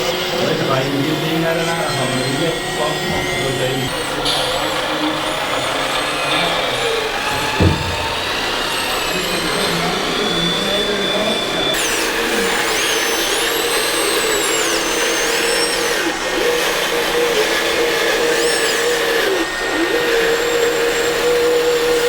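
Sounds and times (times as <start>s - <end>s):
small electric motors whining: 0.0s - 22.0s
single knock: 7.3s - 8.5s.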